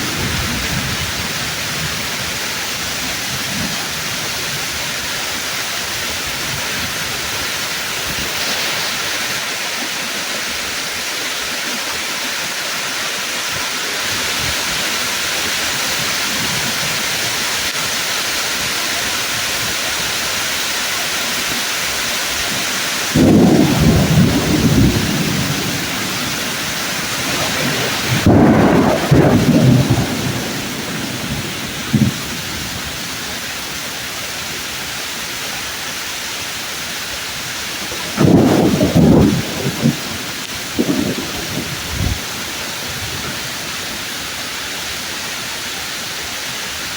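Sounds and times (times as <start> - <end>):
thunderclaps: 0.0 - 4.8, 23.1 - 33.4, 37.8 - 43.7
heavy rain on leaves: 0.0 - 46.9.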